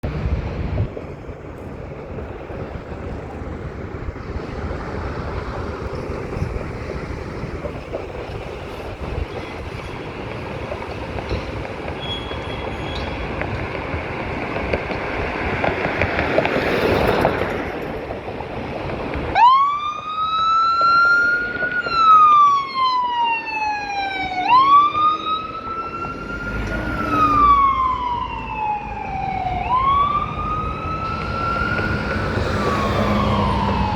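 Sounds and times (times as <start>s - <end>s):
road and engine noise: 0.0s - 33.9s
emergency siren wailing: 19.3s - 33.9s.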